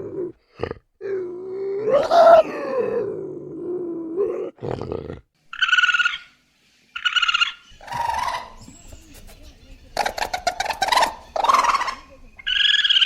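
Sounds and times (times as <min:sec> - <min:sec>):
high trilled animal calls: 0:05.5 - 0:06.4, 0:07.0 - 0:13.0.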